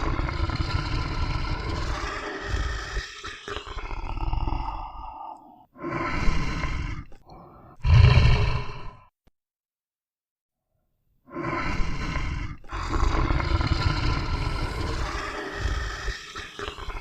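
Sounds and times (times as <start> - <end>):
lion roaring: 0.0 - 5.2, 7.8 - 9.0, 11.4 - 17.0.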